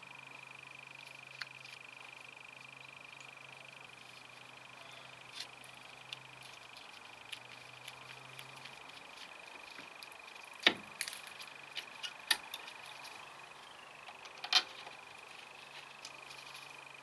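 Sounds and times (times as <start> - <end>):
sharp clicks and knocks: 10.6 - 12.7.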